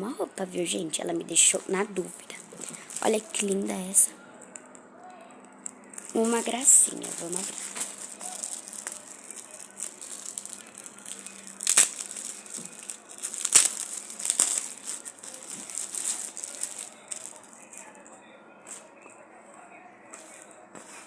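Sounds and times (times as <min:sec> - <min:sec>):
plastic packaging rustling: 0:01.3 - 0:04.8, 0:05.4 - 0:18.9
sharp plastic crackles: 0:01.4 - 0:18.1.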